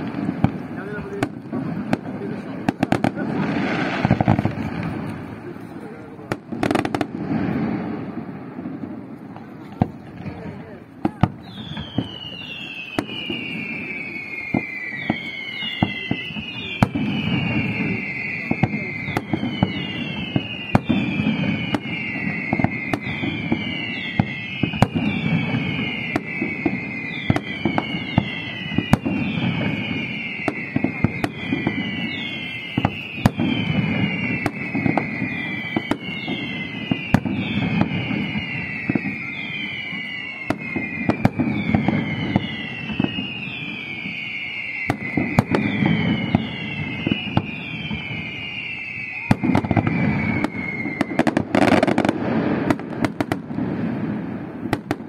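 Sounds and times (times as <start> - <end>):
firework bangs and crackles: 0.0 - 55.0
falling high whistle: 11.1 - 53.4.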